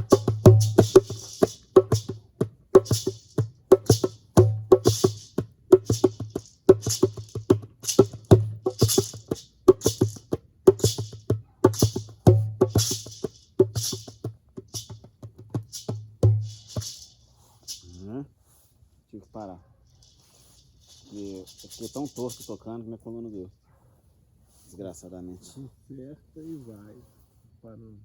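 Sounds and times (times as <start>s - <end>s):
hand drum rhythm: 0.0s - 17.8s.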